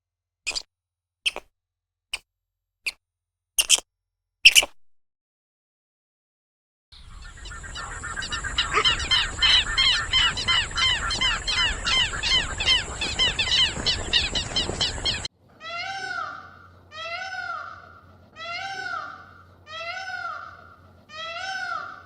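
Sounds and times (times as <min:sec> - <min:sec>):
animal squawking calls: 0:03.6 - 0:03.8, 0:07.4 - 0:13.7, 0:15.6 - 0:22.0.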